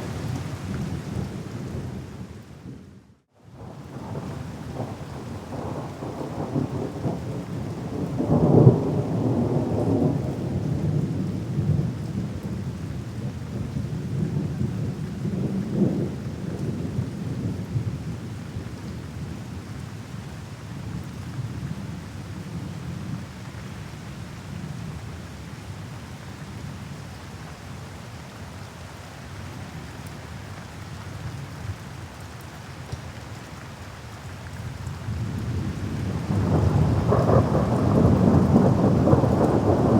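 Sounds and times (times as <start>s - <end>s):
rain hiss: 3.6s - 39.9s
rolling thunder: 35.1s - 39.9s
loud thunder clap: 36.3s - 39.9s.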